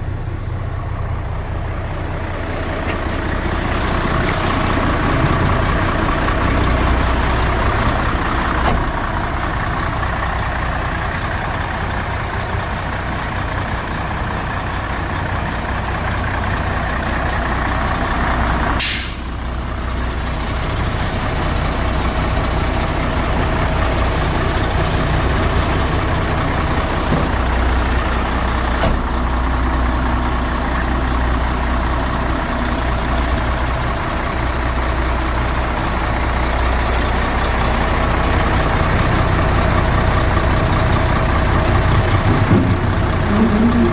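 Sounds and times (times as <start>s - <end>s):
diesel truck engine idling: 0.0s - 43.9s
air brake hiss: 4.0s - 4.8s, 18.8s - 19.5s, 24.8s - 25.3s.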